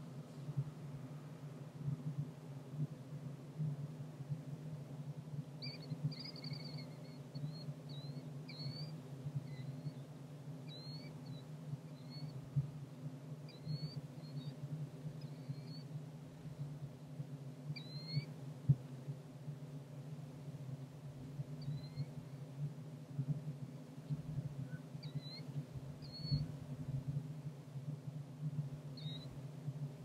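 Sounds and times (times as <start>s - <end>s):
steady low hum: 0.0s - 30.0s
squeaky bird calls: 5.6s - 8.9s, 10.7s - 11.4s.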